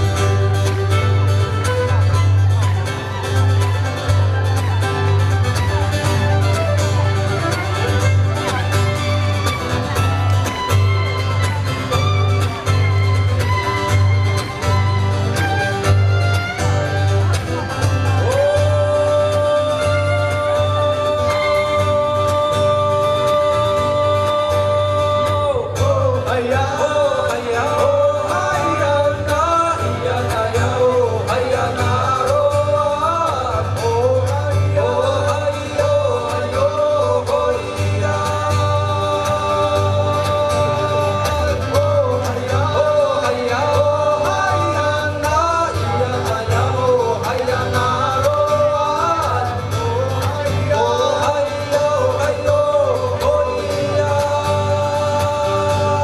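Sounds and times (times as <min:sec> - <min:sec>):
band playing: 0:00.0 - 0:56.0
man singing: 0:17.6 - 0:56.0.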